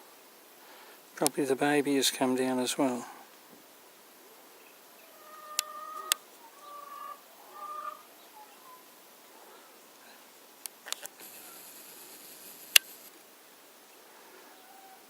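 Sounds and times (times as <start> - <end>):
currawong calling: 4.6 - 10.3, 14.0 - 15.0
sharp clicks: 12.7 - 13.1.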